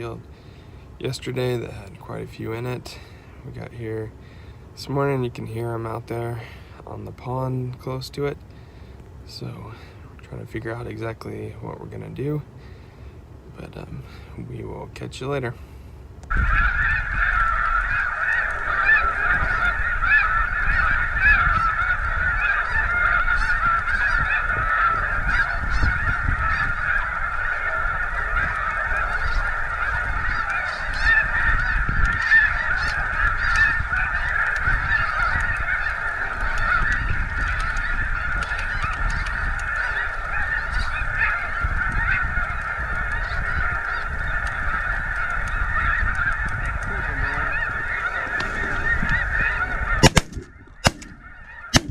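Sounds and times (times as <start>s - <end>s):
geese honking: 0.0s - 51.9s.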